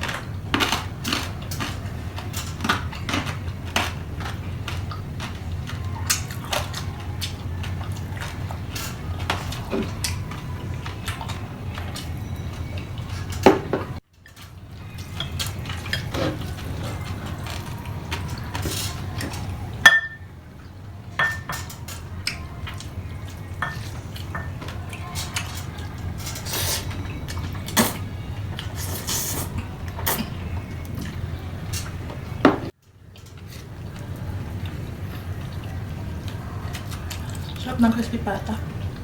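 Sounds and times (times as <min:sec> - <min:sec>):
cutlery clinking on dishes: 0:18.2 - 0:20.3, 0:21.2 - 0:22.4, 0:23.6 - 0:28.0.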